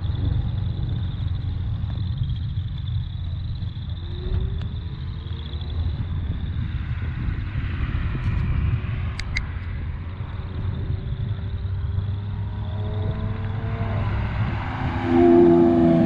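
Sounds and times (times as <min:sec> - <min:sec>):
car engine running at low revs: 0:00.0 - 0:16.0
sharp clicks: 0:09.1 - 0:09.5.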